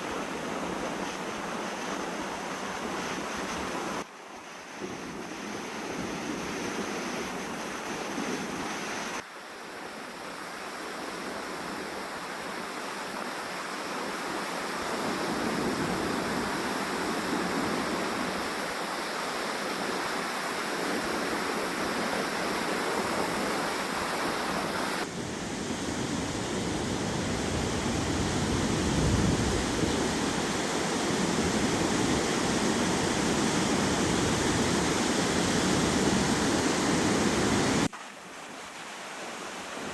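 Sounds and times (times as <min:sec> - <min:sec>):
lake waves washing onto shore: 0:00.0 - 0:04.0, 0:11.2 - 0:39.9
wind buffeting microphone: 0:24.9 - 0:37.9.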